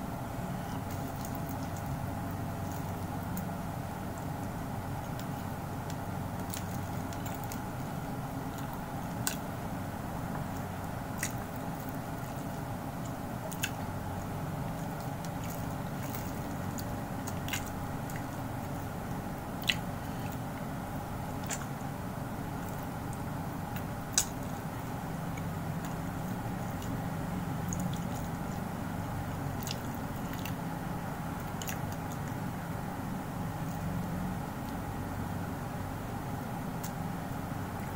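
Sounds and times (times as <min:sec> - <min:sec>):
steady hum: 0:00.0 - 0:37.9
person chewing: 0:10.4 - 0:19.0, 0:19.6 - 0:20.7, 0:22.5 - 0:28.7, 0:29.4 - 0:30.6.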